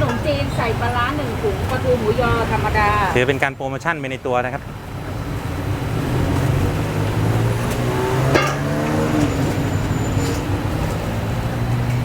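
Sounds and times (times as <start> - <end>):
vehicle engine humming: 4.5 - 12.0.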